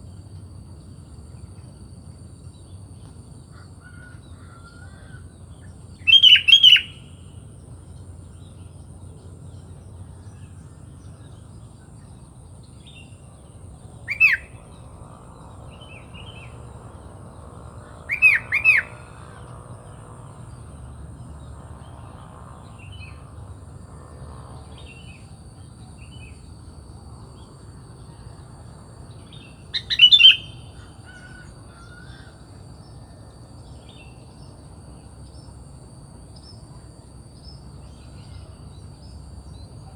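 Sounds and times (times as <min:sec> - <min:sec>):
faint bird chirps: 0:03.4 - 0:14.9, 0:17.8 - 0:19.4, 0:27.4 - 0:35.6.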